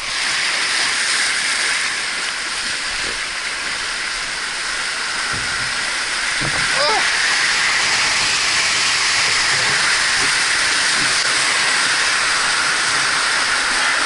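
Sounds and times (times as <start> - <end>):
water rushing down slide: 0.0 - 14.0.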